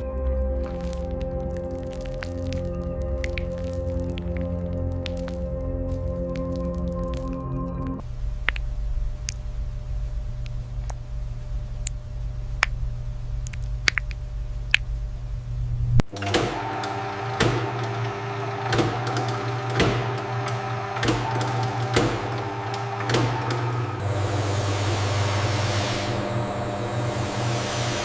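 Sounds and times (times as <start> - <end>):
factory machinery hum: 0.0 - 28.0
machine rattling and clicking: 16.1 - 24.1.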